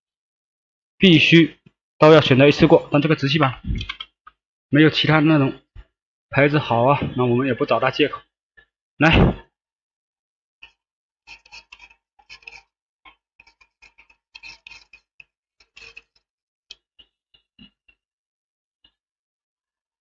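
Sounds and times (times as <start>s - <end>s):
small metal tools ticking and scraping: 10.6s - 17.1s.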